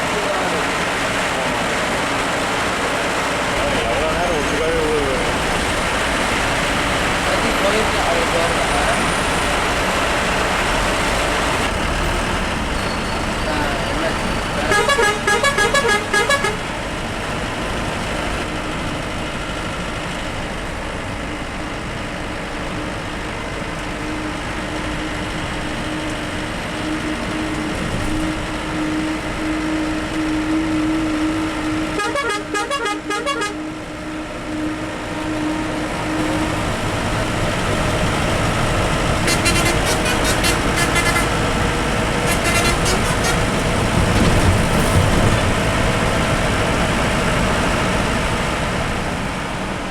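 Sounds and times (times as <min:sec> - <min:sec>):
bus engine and road noise: 0:00.0 - 0:49.9
rapid horn honking: 0:14.6 - 0:16.8, 0:26.6 - 0:37.3, 0:38.9 - 0:43.7.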